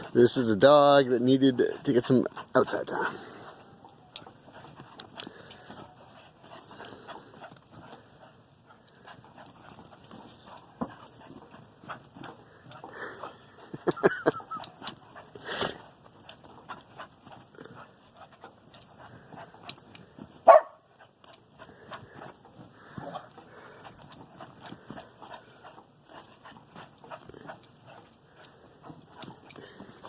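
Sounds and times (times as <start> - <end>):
dog barking: 20.4 - 20.8.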